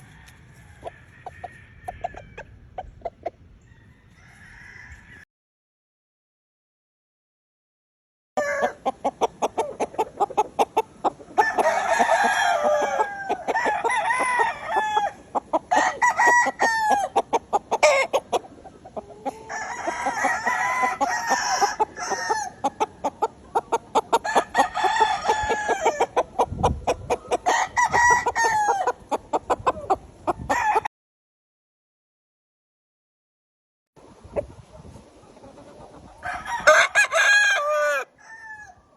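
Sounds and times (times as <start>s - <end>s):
roosters crowing: 0.0s - 2.7s, 3.6s - 5.3s, 8.4s - 9.8s, 11.1s - 30.9s, 36.1s - 38.9s.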